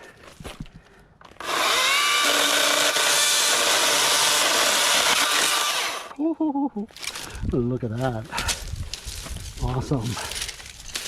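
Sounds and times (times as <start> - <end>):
battery chainsaw cutting stems: 1.3 - 6.2.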